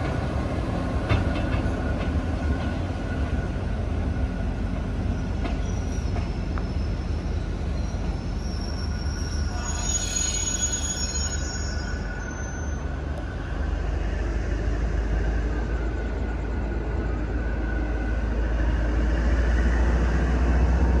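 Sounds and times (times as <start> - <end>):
train rumbling over tracks: 0.0 - 21.0
thin wheel squeal: 5.6 - 12.9.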